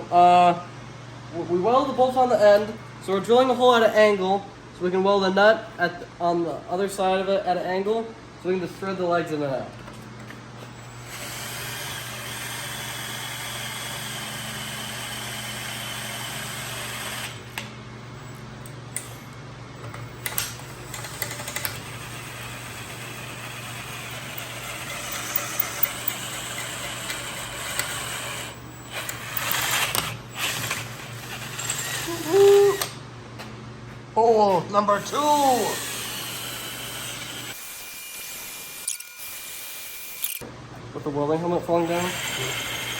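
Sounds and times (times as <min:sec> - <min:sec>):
electric drill boring steel: 0:10.7 - 0:18.4, 0:20.0 - 0:33.0, 0:35.0 - 0:40.4, 0:41.7 - 0:42.9.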